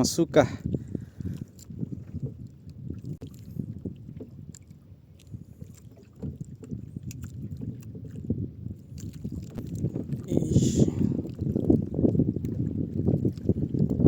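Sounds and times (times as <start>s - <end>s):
water lapping against boat hull: 0.0s - 14.0s.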